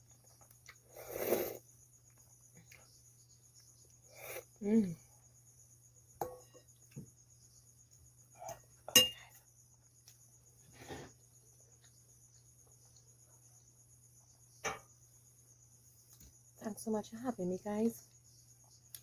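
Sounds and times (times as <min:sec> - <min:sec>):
crickets chirring: 0:00.0 - 0:19.0
cutlery clinking against dish: 0:08.9 - 0:09.2.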